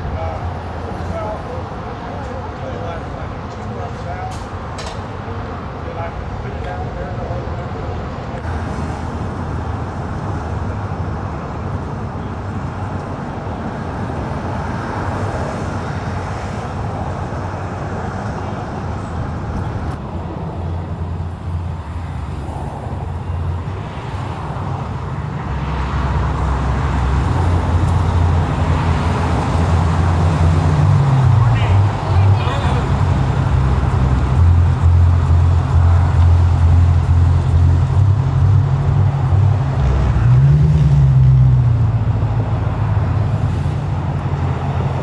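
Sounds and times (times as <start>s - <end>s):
car engine running: 26.0s - 40.2s.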